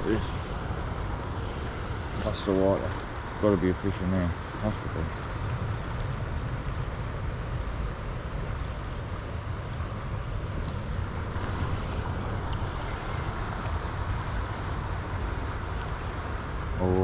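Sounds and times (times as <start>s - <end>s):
river water rushing: 0.0s - 7.1s, 9.8s - 17.0s
wind buffeting microphone: 4.4s - 17.0s.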